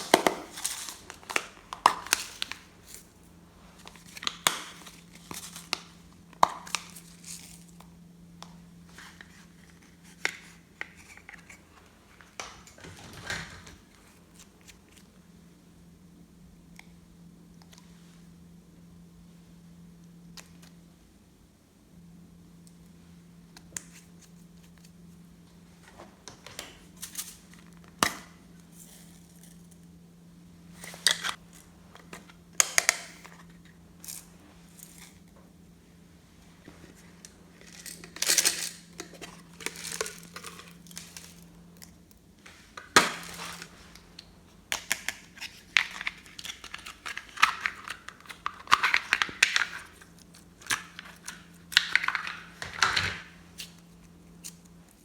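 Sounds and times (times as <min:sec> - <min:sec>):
plastic packaging crinkling: 0:00.0 - 0:03.2, 0:36.8 - 0:42.0, 0:42.7 - 0:55.0.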